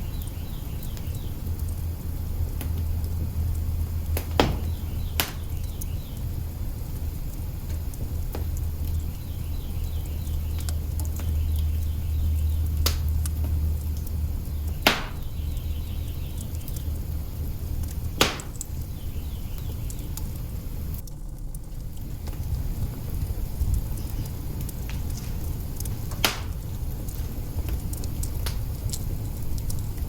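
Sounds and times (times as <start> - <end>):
loud fire pops: 0.0 - 30.0
low rumble: 0.0 - 30.0
wood fire crackling: 0.0 - 30.0.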